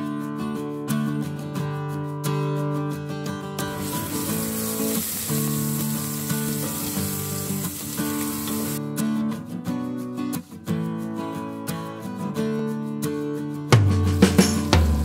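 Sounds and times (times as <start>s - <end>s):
acoustic guitar music: 0.0s - 15.0s
aromatics sizzling in hot oil: 3.7s - 8.8s.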